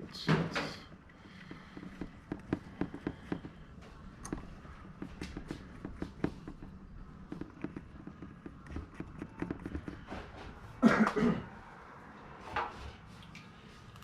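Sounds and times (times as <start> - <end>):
person coughing: 10.8 - 11.5.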